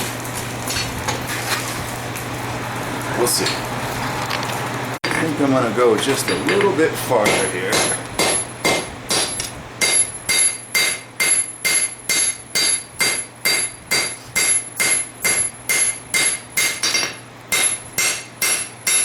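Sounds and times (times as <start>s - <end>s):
steady low hum: 4.7s - 19.0s
hammer blows on hot steel: 6.3s - 19.0s.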